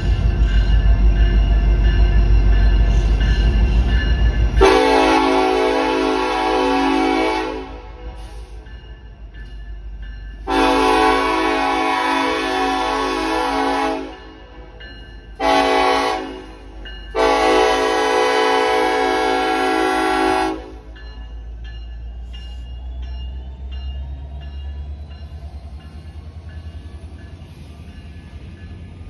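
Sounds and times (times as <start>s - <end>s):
train rumbling low: 0.0s - 29.0s
locomotive air horn blasts: 4.6s - 8.4s, 10.5s - 14.8s, 15.4s - 20.9s
bell ringing steadily: 20.9s - 28.9s.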